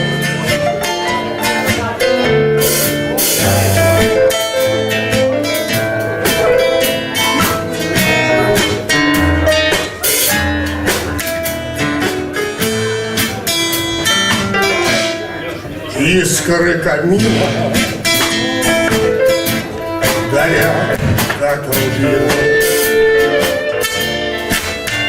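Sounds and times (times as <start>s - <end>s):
live band playing tango: 0.0s - 25.0s
sharp percussion hits: 2.7s - 11.4s.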